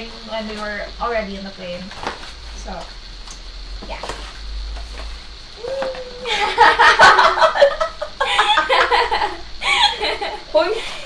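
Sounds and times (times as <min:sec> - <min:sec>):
drawn-out vocal sound: 0:05.6 - 0:06.6
people laughing: 0:06.1 - 0:11.0.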